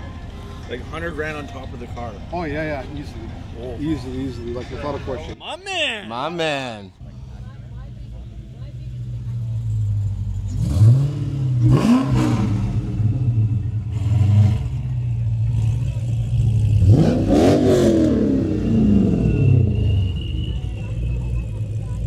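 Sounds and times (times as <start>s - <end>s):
car engine idling and revving: 6.9s - 22.0s.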